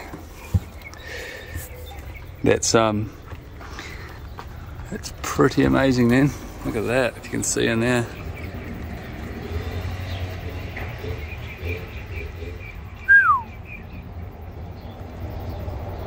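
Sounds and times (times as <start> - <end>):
high bird chirps: 7.6 - 14.2
bird whistle sliding downward: 13.1 - 13.5.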